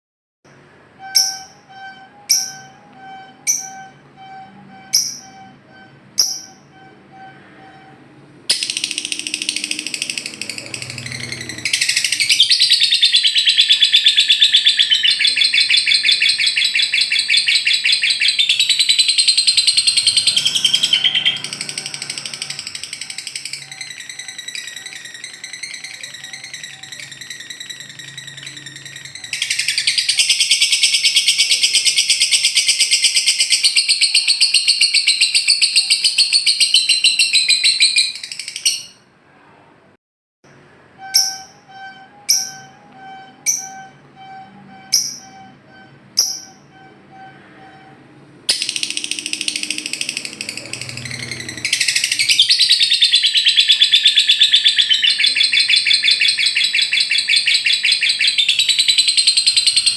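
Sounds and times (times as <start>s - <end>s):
bird chattering trill: 8.5s - 39.0s, 48.5s - 59.9s.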